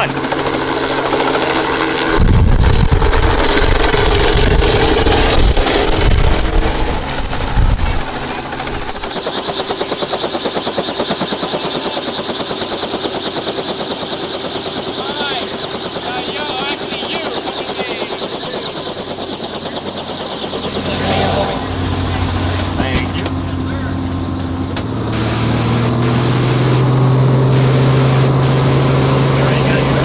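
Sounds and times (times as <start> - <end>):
helicopter rotor blades chopping: 0.0 - 30.0.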